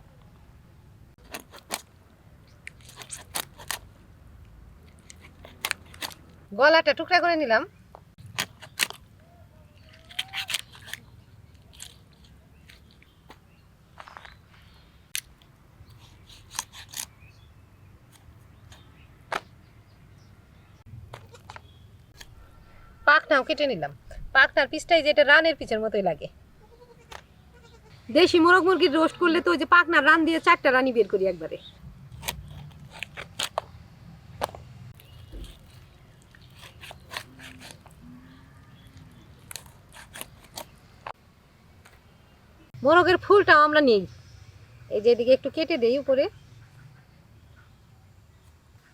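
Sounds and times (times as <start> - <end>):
blade cutting raw chicken: 2.8 - 3.8, 9.9 - 11.0, 15.9 - 17.2, 32.1 - 33.6, 35.0 - 38.0, 39.3 - 40.8.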